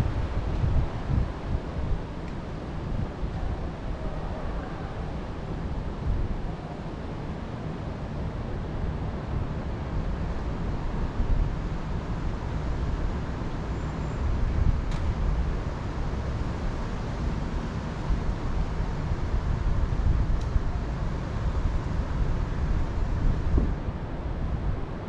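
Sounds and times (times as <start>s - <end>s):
wind rumble: 0.0s - 7.8s, 14.3s - 25.0s.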